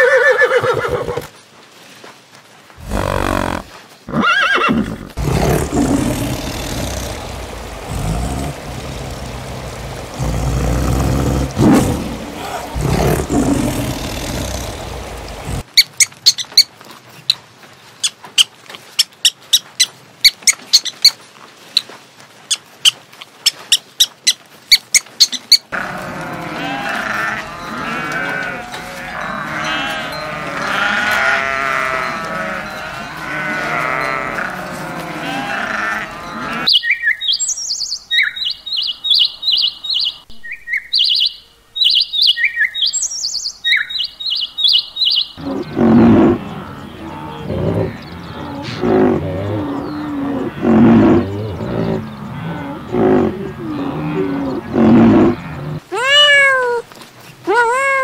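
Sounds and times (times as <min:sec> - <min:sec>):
zebra chewing and rustling: 0:05.1 - 0:36.6
porcupines crunching food: 0:25.7 - 0:29.9
goats bleating: 0:25.7 - 0:36.7.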